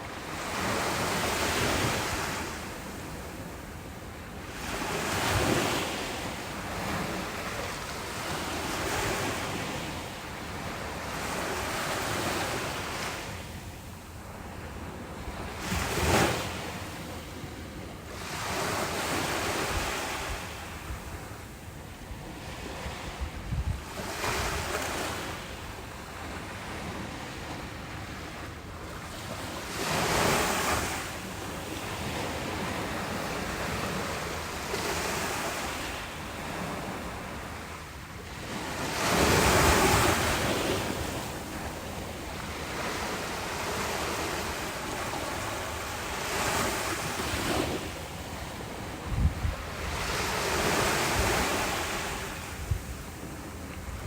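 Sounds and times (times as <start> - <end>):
wind buffeting microphone: 22.4 - 25.3, 47.3 - 54.0
ocean waves breaking: 23.8 - 54.0.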